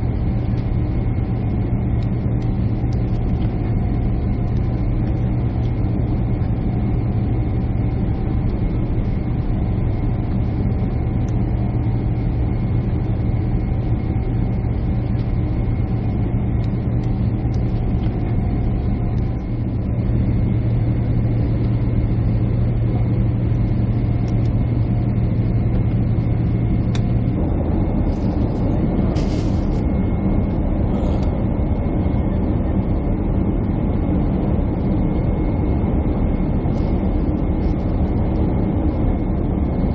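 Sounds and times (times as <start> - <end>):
jet engine cabin drone: 0.0 - 39.9
broad rushing noise: 26.9 - 29.9
brief hiss: 29.2 - 29.8.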